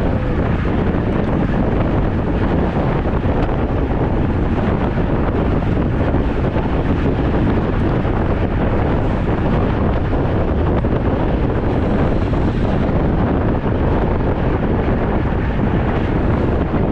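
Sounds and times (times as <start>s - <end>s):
wind rushing over microphone: 0.0s - 16.9s.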